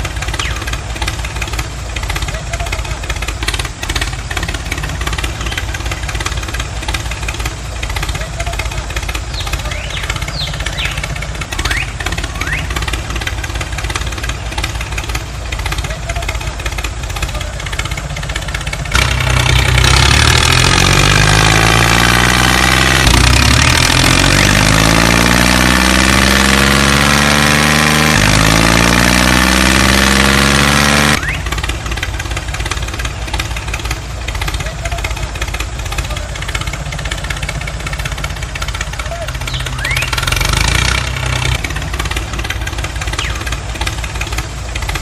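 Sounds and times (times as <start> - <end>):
motor humming and revving: 18.9 - 31.7.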